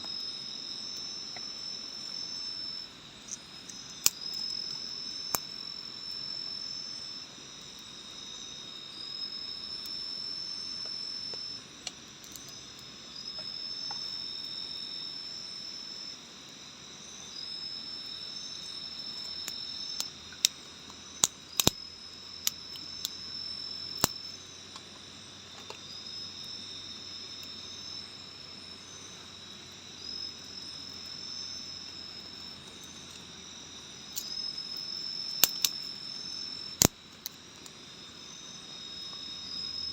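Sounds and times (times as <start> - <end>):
high insect trills: 0.0 - 39.9
steady insect drone: 0.0 - 39.9
sharp clicks: 21.6 - 21.8.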